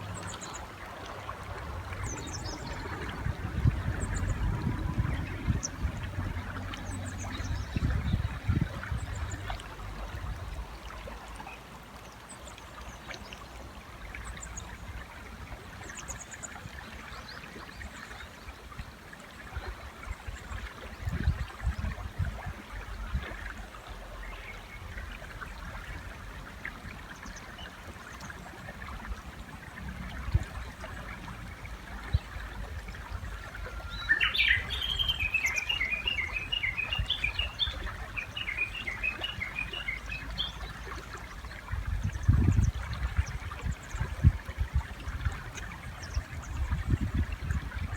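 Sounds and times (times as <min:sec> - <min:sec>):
river water flowing: 0:00.0 - 0:47.9
warbler calling: 0:33.8 - 0:40.7.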